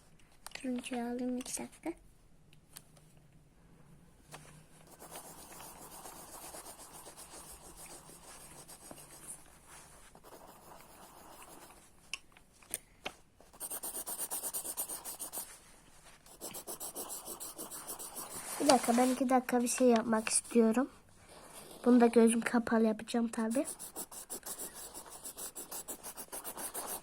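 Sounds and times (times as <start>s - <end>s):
pencil scribbling on paper: 4.9s - 9.4s, 10.1s - 11.8s, 13.5s - 15.6s, 16.3s - 19.2s, 20.2s - 22.1s, 23.4s - 27.0s.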